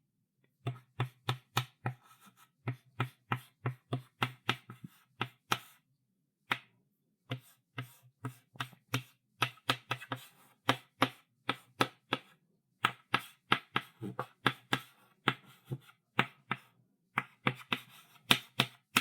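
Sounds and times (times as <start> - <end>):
chalk writing on a chalkboard: 0.7 - 5.8, 7.3 - 19.0.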